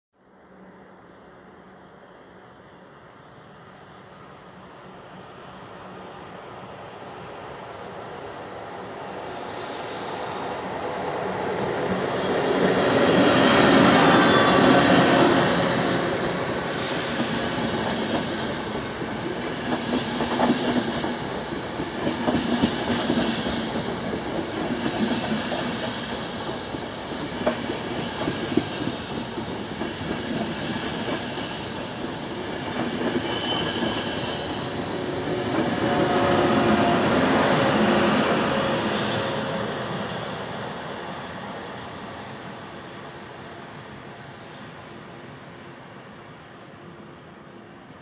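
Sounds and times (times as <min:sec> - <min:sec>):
electric locomotive passing: 0:00.4 - 0:48.0
locomotive whine: 0:10.1 - 0:42.8.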